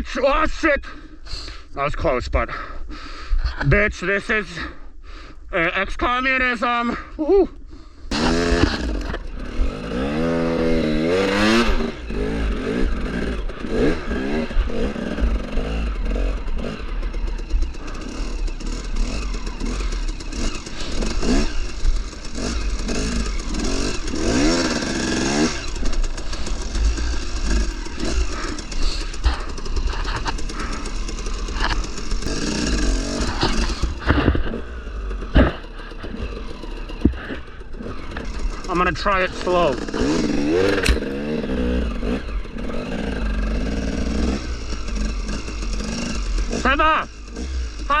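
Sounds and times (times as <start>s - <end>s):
dirt bike engine revving: 8.1s - 48.0s.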